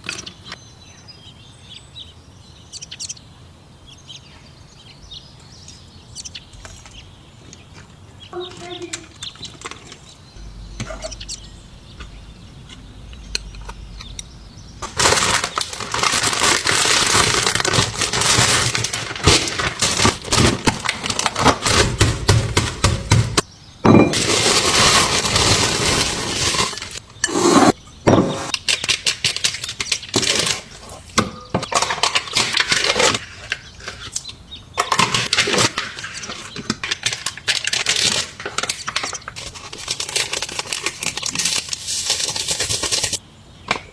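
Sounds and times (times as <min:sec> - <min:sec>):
food packaging crinkling and cracking: 0:09.1 - 0:10.4, 0:14.8 - 0:23.1, 0:24.1 - 0:27.0, 0:28.5 - 0:43.2.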